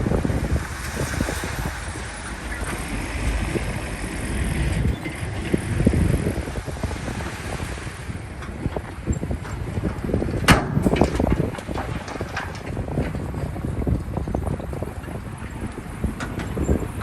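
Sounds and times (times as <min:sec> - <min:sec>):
diesel engine running: 0:00.0 - 0:12.6
wind buffeting microphone: 0:00.0 - 0:17.0.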